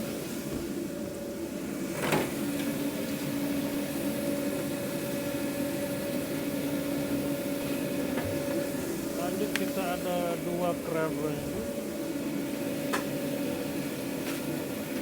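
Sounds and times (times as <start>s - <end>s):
machinery electric hum: 0.0s - 15.0s.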